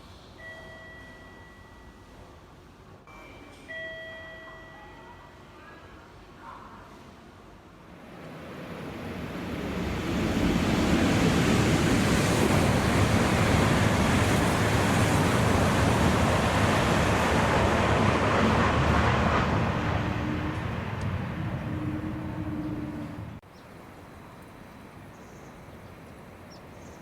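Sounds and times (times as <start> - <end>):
train passing at high speed: 7.7 - 23.4.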